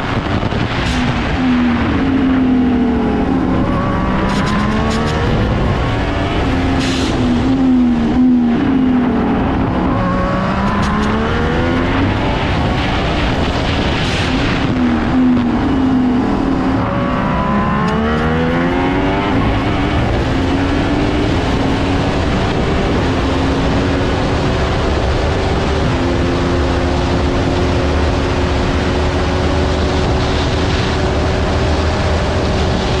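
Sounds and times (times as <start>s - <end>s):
racing car engine: 0.0s - 33.0s.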